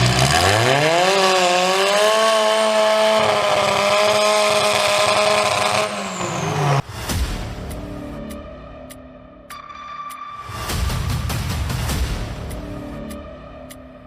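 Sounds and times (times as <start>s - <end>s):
chainsaw engine revving: 0.0s - 6.8s.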